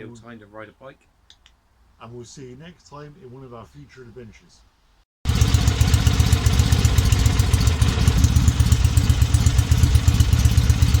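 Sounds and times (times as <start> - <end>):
motorcycle engine running: 5.3 - 11.0.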